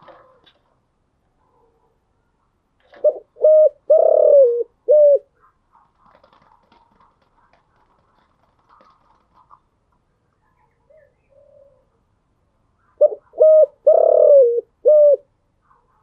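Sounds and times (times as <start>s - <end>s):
dove cooing: 0.0s - 0.8s, 2.9s - 9.6s, 10.8s - 12.0s, 12.8s - 16.0s.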